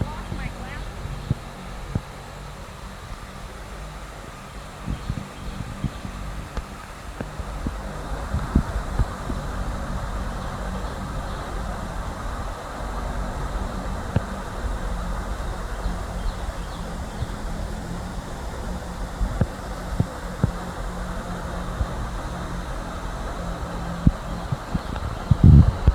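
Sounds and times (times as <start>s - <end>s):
small waterfall rushing: 0.0s - 25.9s
vehicle engine idling: 0.0s - 25.9s.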